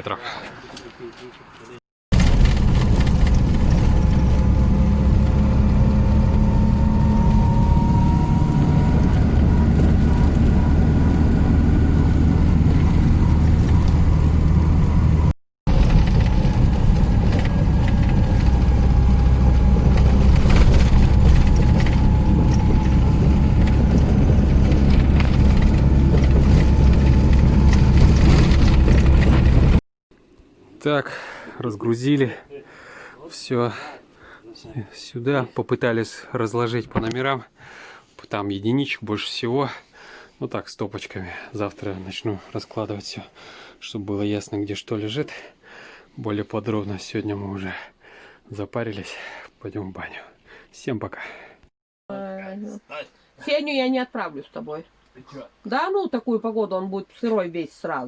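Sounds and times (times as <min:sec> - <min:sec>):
car engine and tyres rumbling: 0:02.1 - 0:29.8.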